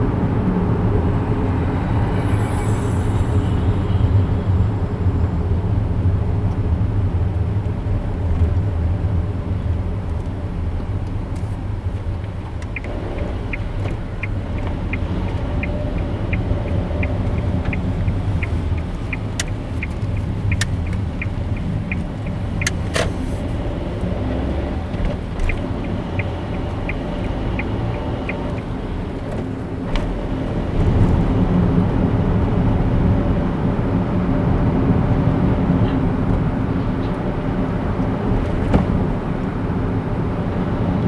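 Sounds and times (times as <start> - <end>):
car engine and road noise: 0.0 - 41.0
regular ticking: 12.2 - 23.2, 25.1 - 30.7.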